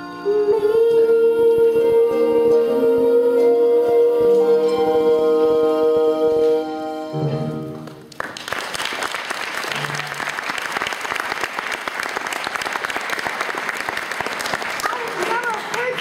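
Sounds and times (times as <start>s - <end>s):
song music: 0.0s - 8.2s
audience applause: 7.8s - 16.0s.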